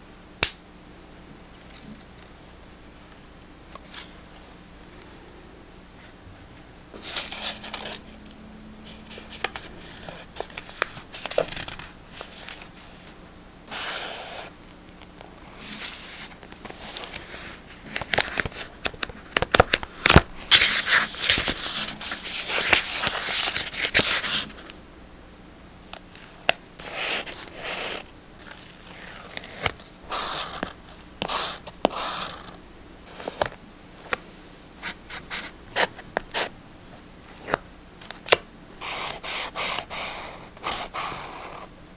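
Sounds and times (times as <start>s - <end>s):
paper crinkling or tearing: 7.0s - 8.1s, 8.9s - 12.8s, 19.5s - 24.5s.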